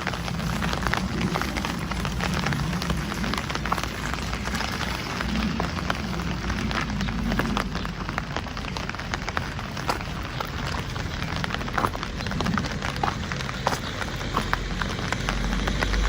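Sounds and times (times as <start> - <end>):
low rumble: 0.0 - 9.7, 14.6 - 16.0
rain hiss: 0.0 - 16.0
raindrops ticking: 0.0 - 16.0.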